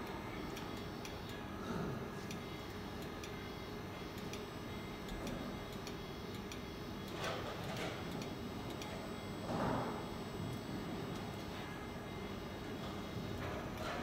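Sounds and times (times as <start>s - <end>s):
steady low hum: 0.0s - 14.0s
faint regular ticking: 2.3s - 3.4s, 4.1s - 7.2s.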